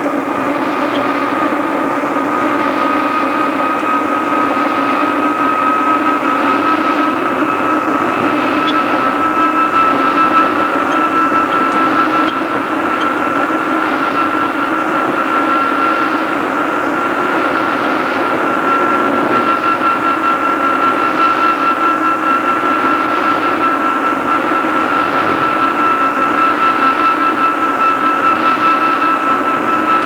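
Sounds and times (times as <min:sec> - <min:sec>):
electric train running: 0:00.0 - 0:30.0
high whine: 0:00.0 - 0:30.0.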